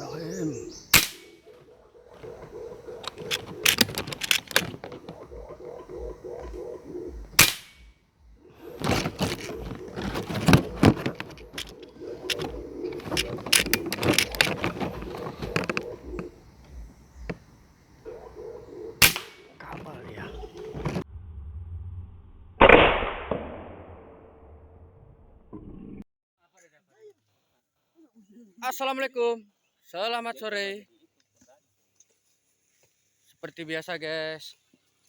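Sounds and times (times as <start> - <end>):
air rifle shot: 0.9 - 1.5, 7.3 - 8.0, 19.0 - 19.6, 22.6 - 23.7
sharp clicks and knocks: 2.2 - 5.6, 8.8 - 17.6.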